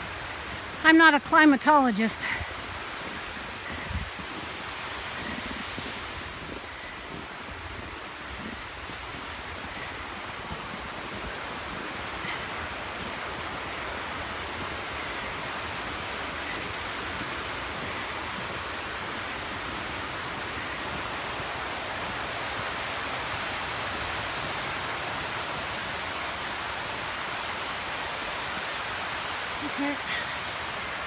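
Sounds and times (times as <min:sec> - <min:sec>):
waves washing onto beach: 0:00.0 - 0:31.0
wind buffeting microphone: 0:00.0 - 0:31.0.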